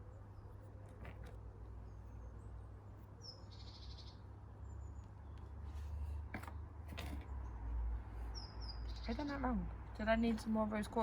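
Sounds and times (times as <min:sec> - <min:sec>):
small bird chirping and trilling: 0:03.2 - 0:05.4, 0:08.3 - 0:09.6.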